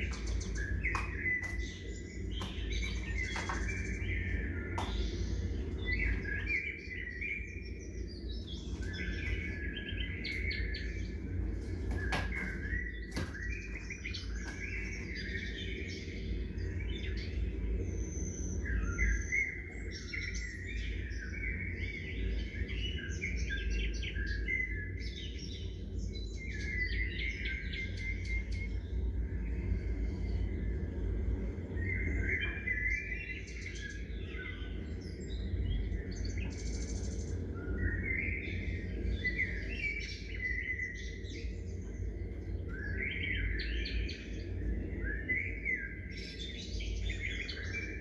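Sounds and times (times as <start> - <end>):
low rumble: 0.0 - 7.2
songbirds chirping and twittering: 0.0 - 48.0.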